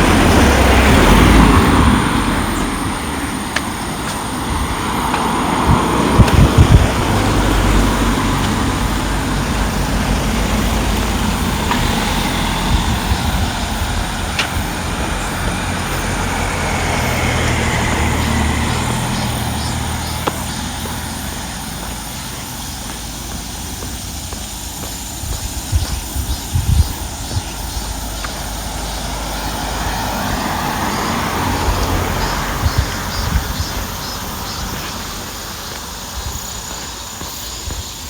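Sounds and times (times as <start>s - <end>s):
vehicle engine humming: 0.0s - 38.0s.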